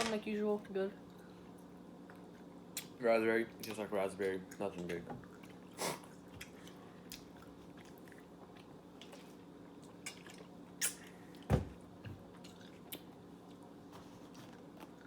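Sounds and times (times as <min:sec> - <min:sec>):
faint steady hum: 0:00.0 - 0:15.0
person chewing: 0:05.3 - 0:11.4, 0:12.3 - 0:15.0.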